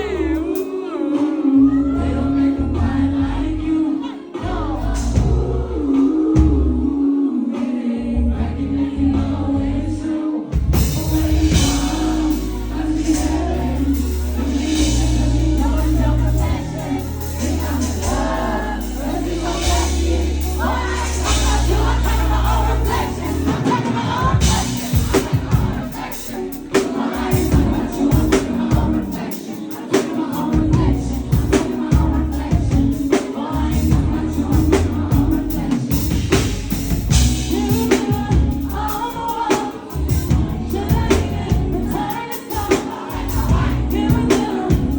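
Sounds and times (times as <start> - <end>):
backing track with heavy bass: 0.0 - 0.8, 1.6 - 7.0, 8.0 - 44.9
woman singing: 0.0 - 44.9
steady drum beat: 10.6 - 44.9.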